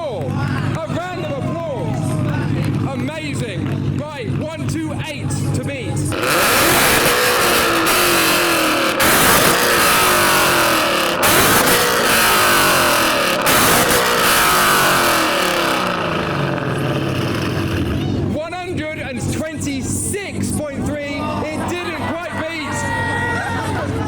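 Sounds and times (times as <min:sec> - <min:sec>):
car engine revving hard: 0:06.1 - 0:18.2.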